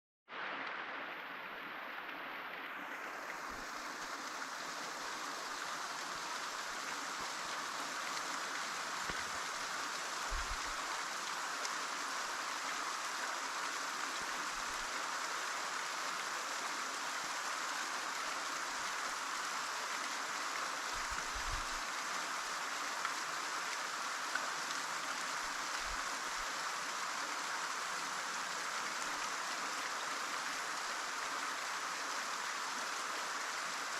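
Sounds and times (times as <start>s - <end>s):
waterfall rushing: 0.3s - 16.4s.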